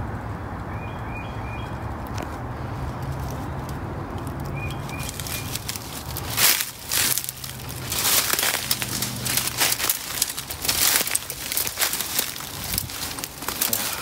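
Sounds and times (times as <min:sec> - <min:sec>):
twigs crackling against clothing: 0:02.0 - 0:14.0.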